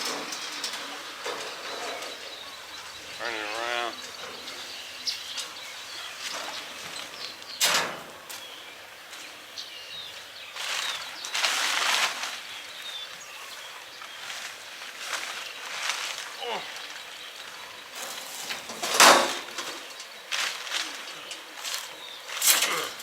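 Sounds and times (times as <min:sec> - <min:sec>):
small birds chirping: 0:00.4 - 0:18.8, 0:19.4 - 0:23.0
scraping or rustling: 0:10.6 - 0:12.5, 0:18.0 - 0:23.0.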